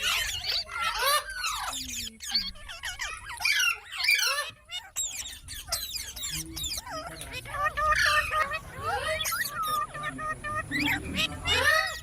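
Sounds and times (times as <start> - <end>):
parakeet chattering: 0.0 - 12.0.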